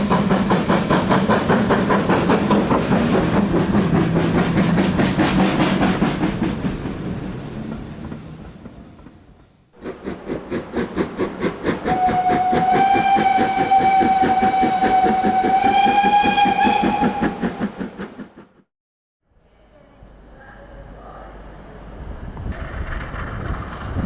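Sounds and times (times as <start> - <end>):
steam locomotive exhaust beats: 0.0 - 18.7
long steady train whistle: 11.8 - 17.6.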